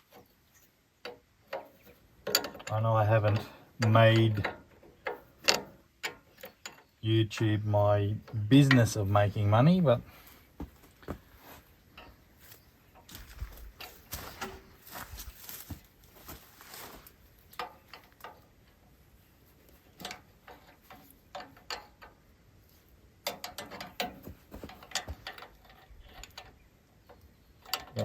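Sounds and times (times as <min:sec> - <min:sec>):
hand tools clicking on metal: 0:01.0 - 0:07.0, 0:23.2 - 0:28.0.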